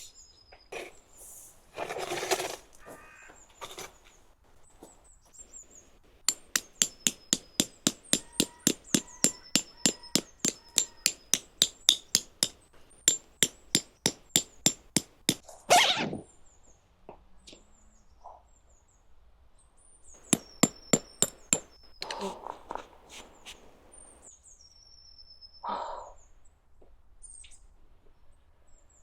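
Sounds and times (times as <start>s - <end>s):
hammer striking: 5.6s - 15.4s, 20.2s - 23.6s.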